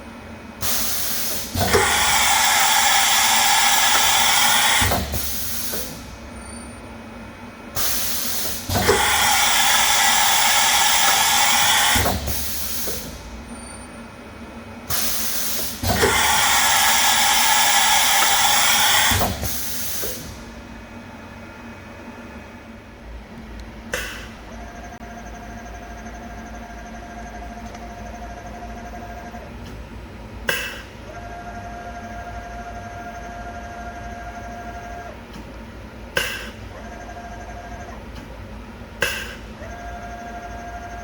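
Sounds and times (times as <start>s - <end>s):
mill machine running: 0.6s - 6.4s, 7.8s - 13.7s, 14.9s - 20.9s.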